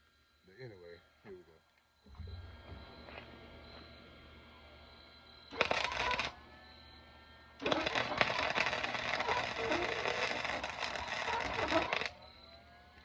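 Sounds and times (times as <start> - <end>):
arc welding crackling: 5.5 - 6.4, 7.6 - 13.0.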